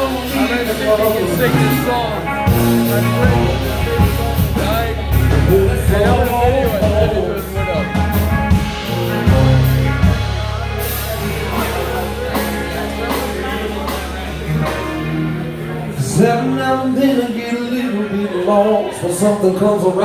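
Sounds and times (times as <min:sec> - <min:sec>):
bass: 0:00.0 - 0:20.0
drums: 0:00.0 - 0:20.0.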